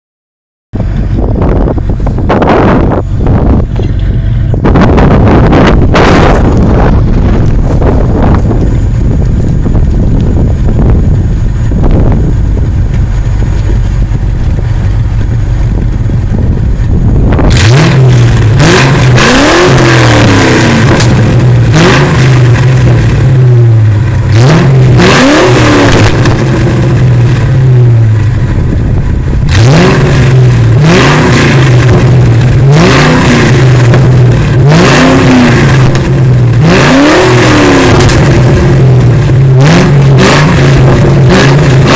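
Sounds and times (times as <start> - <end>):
car engine idling and revving: 0.7 - 41.9
wind buffeting microphone: 0.8 - 24.4, 25.0 - 33.0.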